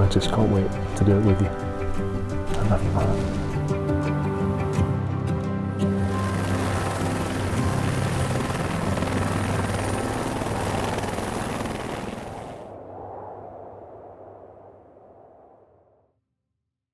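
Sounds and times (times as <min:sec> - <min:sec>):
helicopter rotor chop: 0:06.0 - 0:12.7.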